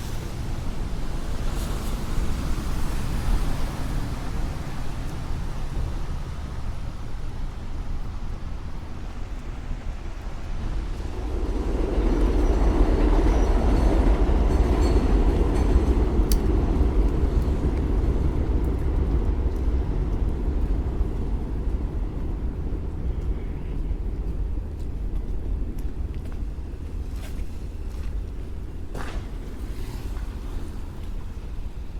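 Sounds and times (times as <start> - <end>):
subway train rumble: 0.0 - 31.9
wheels squealing on rail: 10.7 - 16.2.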